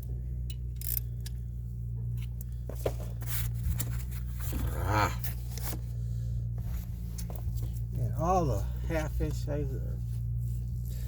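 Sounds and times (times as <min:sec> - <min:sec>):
steady low hum: 0:00.0 - 0:11.0
person grunting: 0:04.6 - 0:05.2.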